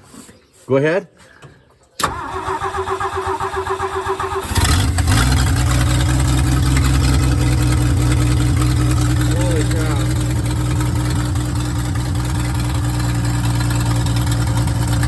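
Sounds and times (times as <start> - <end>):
starter motor cranking: 2.0 - 15.0
engine running steadily: 4.4 - 15.0.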